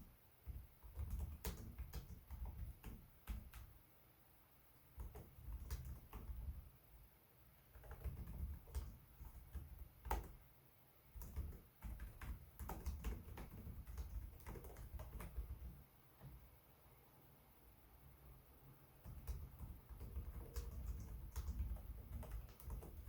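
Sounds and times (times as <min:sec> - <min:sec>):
laptop keyboard typing: 0:00.0 - 0:03.8, 0:05.0 - 0:06.7, 0:07.7 - 0:10.4, 0:11.1 - 0:15.8, 0:19.0 - 0:23.0.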